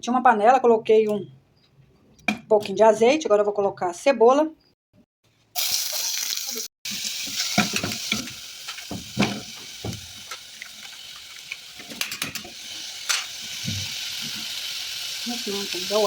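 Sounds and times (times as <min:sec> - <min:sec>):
onion sizzling in oil: 0:05.6 - 0:16.0.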